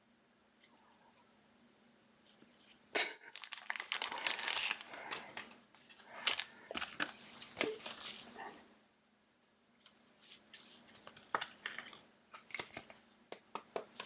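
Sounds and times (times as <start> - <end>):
plastic wrappers crinkling: 3.2 - 8.8, 9.8 - 13.1.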